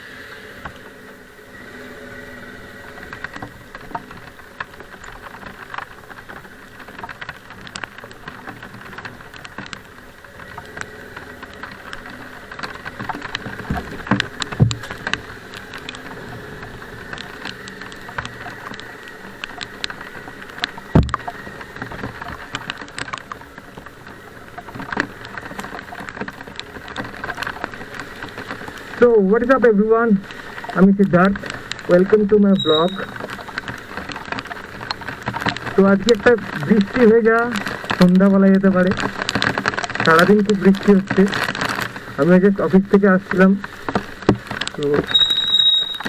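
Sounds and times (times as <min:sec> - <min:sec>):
rain pattering: 0:00.0 - 0:46.0
loud knocks: 0:20.9 - 0:21.2.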